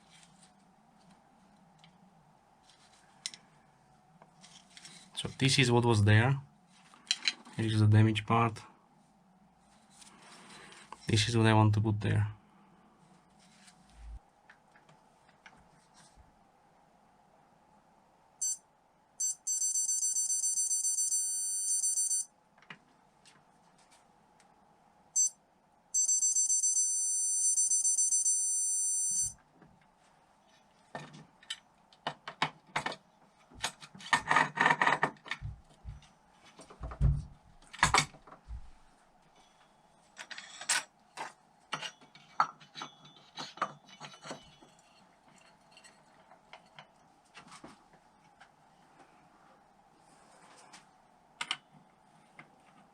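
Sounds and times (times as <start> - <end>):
short electronic beeps: 19.2 - 22.3, 25.2 - 25.4, 26.0 - 29.3
metal tools clicking and knocking: 41.7 - 46.9.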